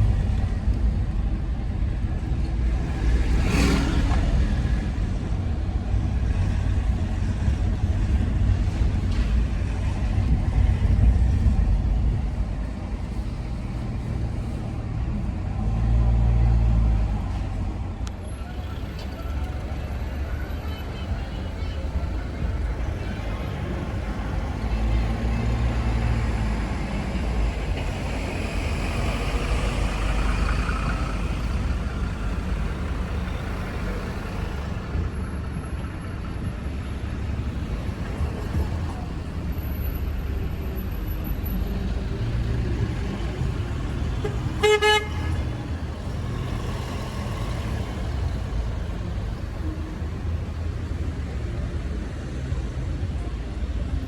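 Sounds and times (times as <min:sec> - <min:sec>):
traffic rumble: 0:00.0 - 0:54.0
car horn toot: 0:44.1 - 0:45.5.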